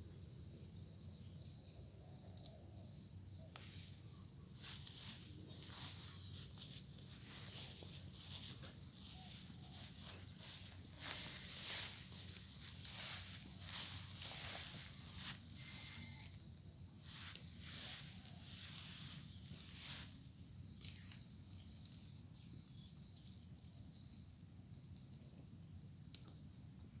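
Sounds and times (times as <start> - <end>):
high-pitched insect trill: 0.1 - 26.9
rustling strokes: 3.6 - 16.0.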